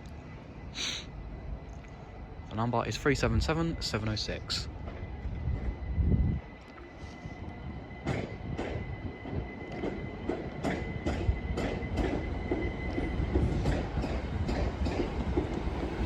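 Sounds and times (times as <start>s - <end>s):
low train rumble: 0.0s - 16.0s
train wheels clicking over rail joints: 8.0s - 16.0s.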